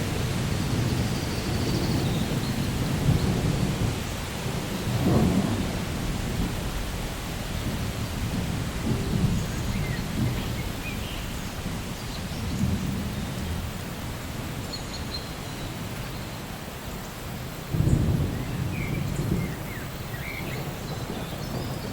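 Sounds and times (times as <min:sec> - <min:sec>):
low rumble of thunder: 0:00.0 - 0:16.1, 0:17.5 - 0:21.9
steady rain: 0:00.0 - 0:21.9.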